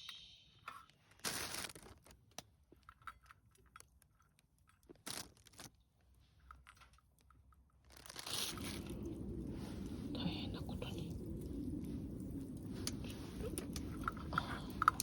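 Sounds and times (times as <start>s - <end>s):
rustling crinkling bursts: 1.0s - 2.4s, 3.8s - 6.3s, 7.8s - 15.0s.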